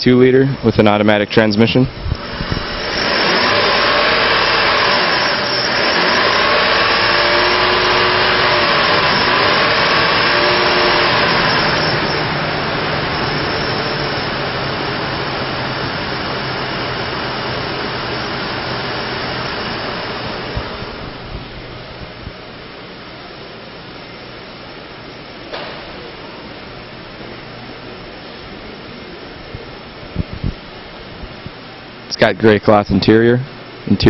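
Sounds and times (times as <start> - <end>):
car engine revving and idling: 1.9 - 21.8.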